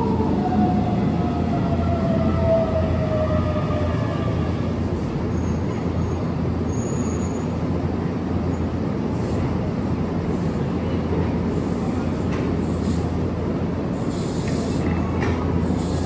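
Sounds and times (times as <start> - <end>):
train low rumble: 0.0 - 16.0
faint high brake squeal: 5.3 - 7.6.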